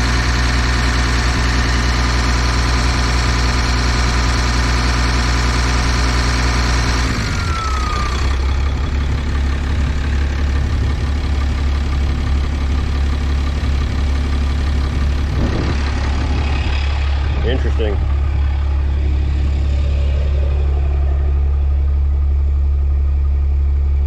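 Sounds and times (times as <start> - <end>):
diesel engine idling: 0.0 - 24.0
short falling whine: 14.8 - 24.0.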